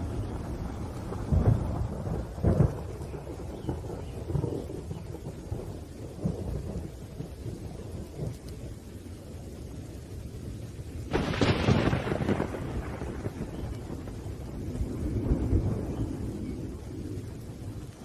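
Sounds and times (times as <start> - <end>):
thunder crack: 0.0 - 5.5, 11.1 - 16.8
rain: 0.0 - 18.0
thunder rumbling: 0.0 - 18.0.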